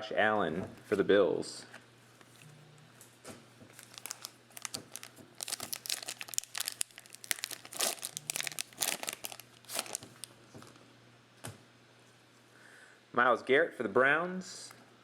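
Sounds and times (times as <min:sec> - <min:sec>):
foil wrappers crinkling and tearing: 0:03.7 - 0:10.3.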